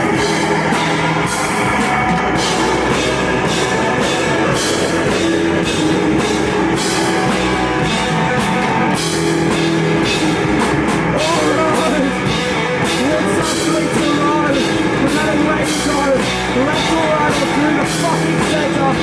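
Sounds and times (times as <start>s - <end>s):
drum kit snare and cymbal hits: 0.0s - 19.0s
electric guitar: 0.0s - 19.0s
rock band playing: 0.0s - 19.0s
person singing: 11.1s - 19.0s.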